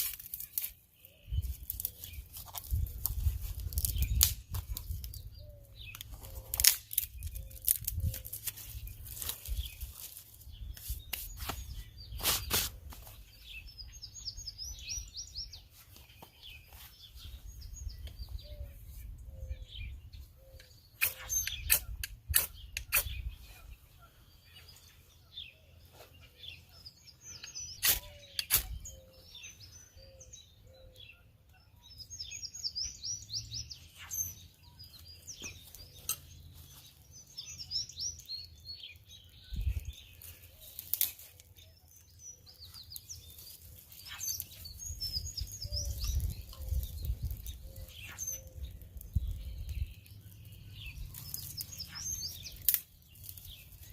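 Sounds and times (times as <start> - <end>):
birds warbling: 16.3 - 53.9.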